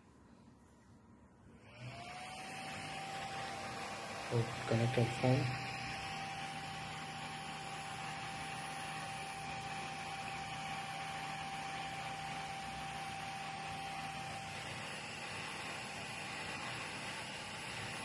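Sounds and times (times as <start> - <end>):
small fan whirring: 1.4 - 18.0
thin high whine: 4.2 - 10.4.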